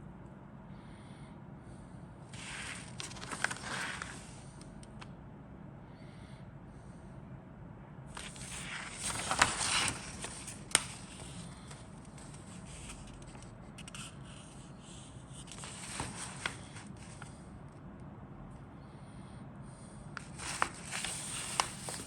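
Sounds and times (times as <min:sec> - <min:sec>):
plastic packaging crinkling: 0:02.8 - 0:04.2.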